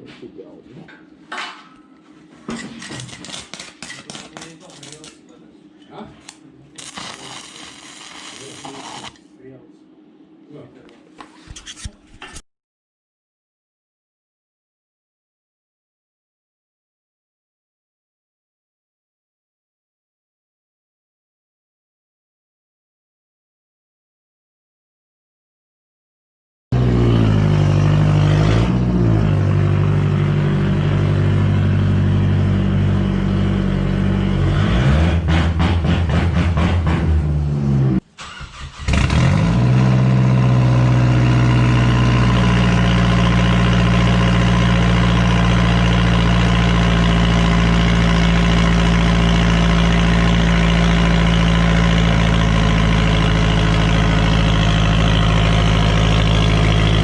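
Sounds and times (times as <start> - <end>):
engine revving: 26.7 - 57.0
raspy car engine idling: 41.4 - 57.0.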